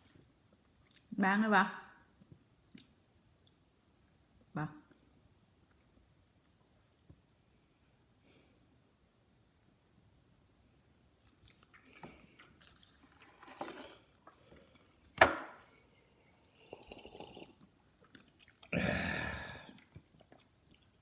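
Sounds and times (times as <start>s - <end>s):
person chewing food: 11.2s - 15.1s, 16.4s - 18.8s, 19.5s - 21.0s.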